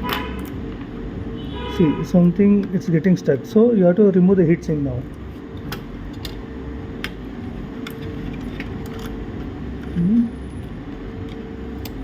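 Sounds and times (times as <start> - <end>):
low hum: 4.3 - 12.0.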